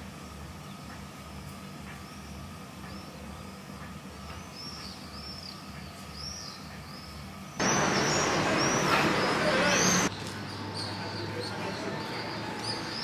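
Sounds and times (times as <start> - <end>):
low city hum: 0.0 - 13.0
small birds chirping: 0.2 - 13.0
loud rushing noise: 7.6 - 10.1.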